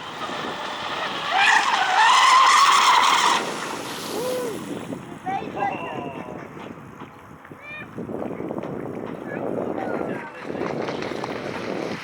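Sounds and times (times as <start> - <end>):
boat hull hissing on water: 2.8 - 5.0.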